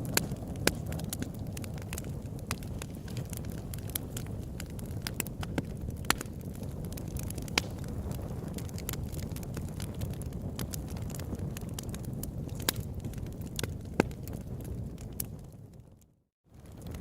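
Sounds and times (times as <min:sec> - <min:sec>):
campfire crackling and popping: 0:00.0 - 0:17.0
low rumble of flames: 0:00.0 - 0:17.0.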